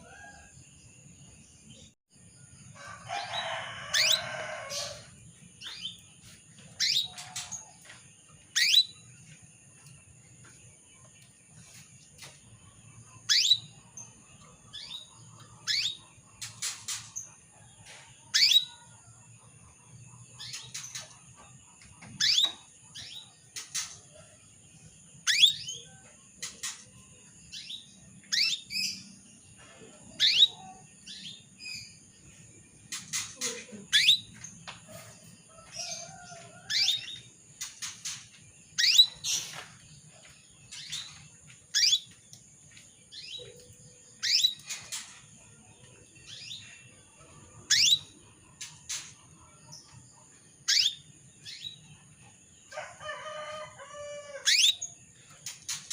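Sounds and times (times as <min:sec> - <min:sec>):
canary chirping calls: 0:03.1 - 0:06.1, 0:06.7 - 0:09.1, 0:13.2 - 0:17.3, 0:18.3 - 0:18.8, 0:22.0 - 0:24.1, 0:25.2 - 0:25.8, 0:27.5 - 0:29.0, 0:29.8 - 0:32.0, 0:32.9 - 0:39.7, 0:40.7 - 0:42.2, 0:43.1 - 0:45.2, 0:46.2 - 0:49.4, 0:50.6 - 0:51.9, 0:53.0 - 0:55.9.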